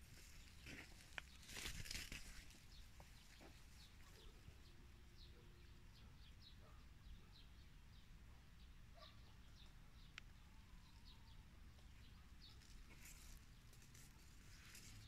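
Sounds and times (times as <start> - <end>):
distant birds chirping: 0.0 - 15.0
rustle: 0.1 - 2.6, 12.6 - 15.0.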